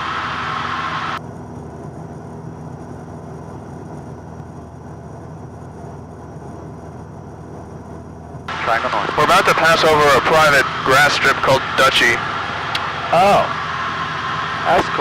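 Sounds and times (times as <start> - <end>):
airplane engine and propeller drone: 0.0 - 15.0.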